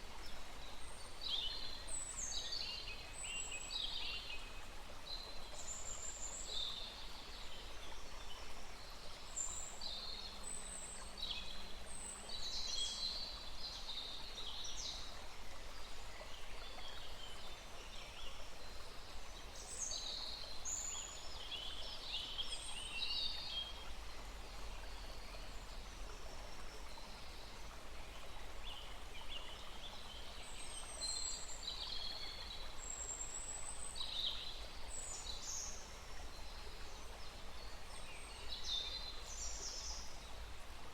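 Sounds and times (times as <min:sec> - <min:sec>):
small stream rushing: 0:00.0 - 0:40.9.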